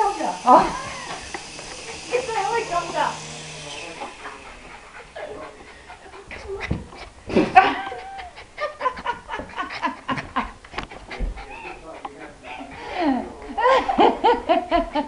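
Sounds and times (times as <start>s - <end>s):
dog panting: 0.0s - 15.0s
dog excited noises: 0.7s - 12.8s.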